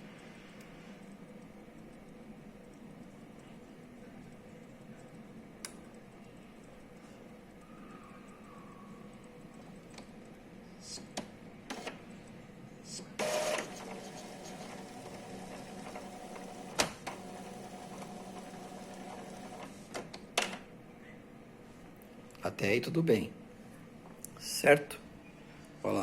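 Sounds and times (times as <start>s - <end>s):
printer mechanism sharp burst: 11.7s - 12.0s, 13.2s - 19.9s
printer motor running: 11.7s - 12.0s, 13.2s - 19.8s.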